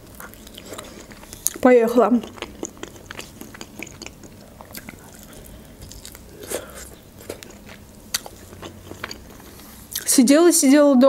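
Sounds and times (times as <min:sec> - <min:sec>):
crunching while chewing: 0:00.0 - 0:10.1
wet mouth clicks: 0:02.2 - 0:09.2.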